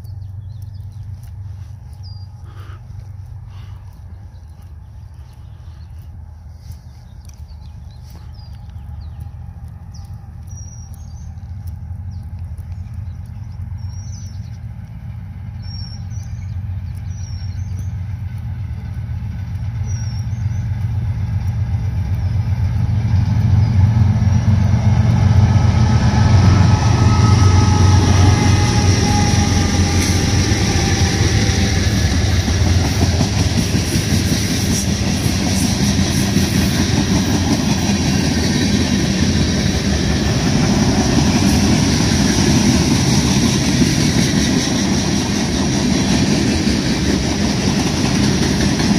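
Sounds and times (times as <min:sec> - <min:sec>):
diesel locomotive engine drone: 0:00.0 - 0:48.9
freight cars rolling on rails: 0:03.1 - 0:48.9.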